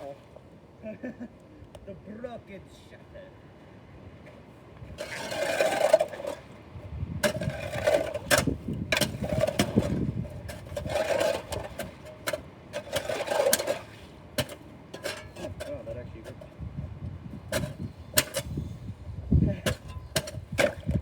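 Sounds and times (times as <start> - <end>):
metal shovel scraping and clanking: 0.0 - 0.3, 4.9 - 16.7, 17.3 - 18.9, 19.5 - 21.0.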